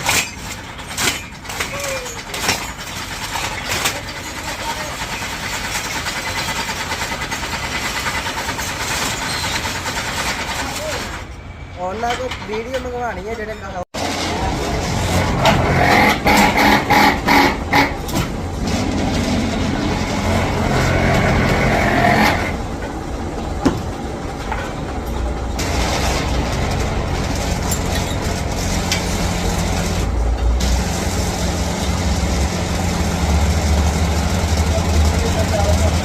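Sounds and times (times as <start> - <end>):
heavy machine engine humming: 14.0 - 36.0.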